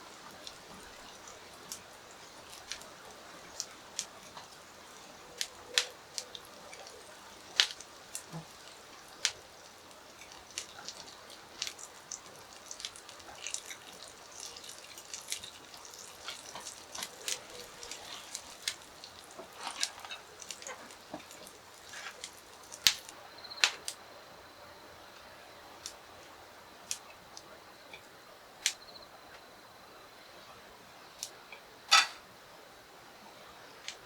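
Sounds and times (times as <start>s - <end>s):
charcoal grill crackling: 0.0s - 24.0s, 31.2s - 32.2s.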